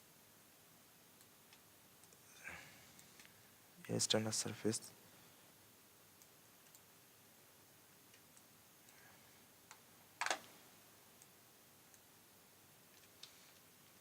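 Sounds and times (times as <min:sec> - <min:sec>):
computer mouse clicks: 0:06.2 - 0:06.9.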